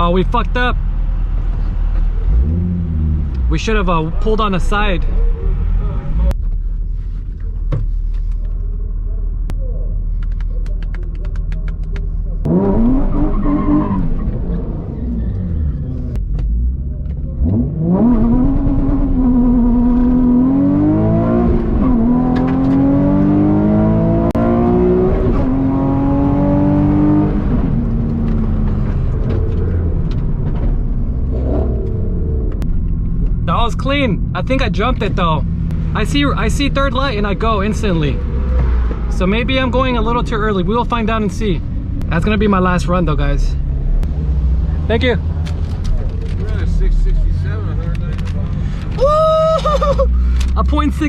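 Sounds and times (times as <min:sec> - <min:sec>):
car engine revving: 0:00.4 - 0:51.0
car accelerating through gears: 0:12.4 - 0:32.6.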